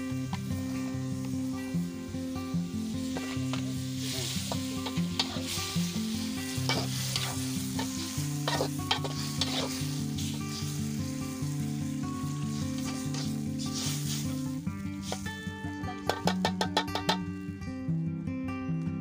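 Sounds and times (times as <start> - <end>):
food sizzling in a wok: 0.0 - 17.8
metal spatula scraping wok: 3.1 - 17.4.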